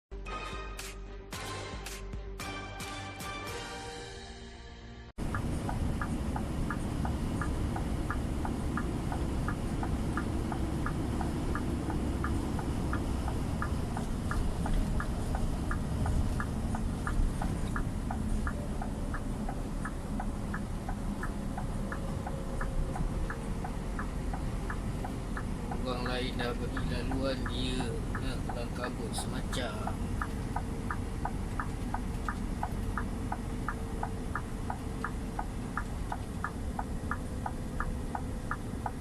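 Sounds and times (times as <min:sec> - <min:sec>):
road noise inside cab: 0:05.1 - 0:39.0
diesel engine rumble: 0:05.2 - 0:39.0
truck indicator ticking: 0:05.2 - 0:39.0.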